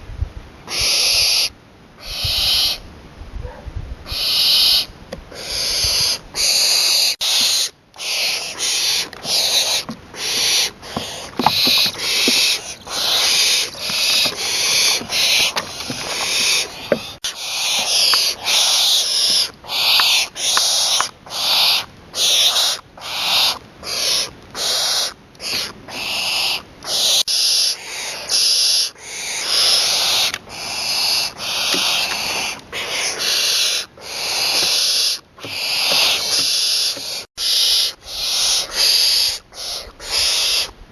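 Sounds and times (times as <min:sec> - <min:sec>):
young owl hissing calls: 0:00.7 - 0:02.8, 0:04.1 - 0:40.8.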